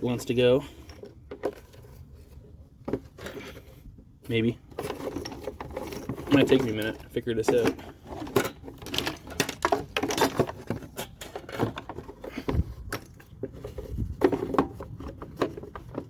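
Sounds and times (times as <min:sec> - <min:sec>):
fuel tank clicks and rattles: 0:04.6 - 0:16.0.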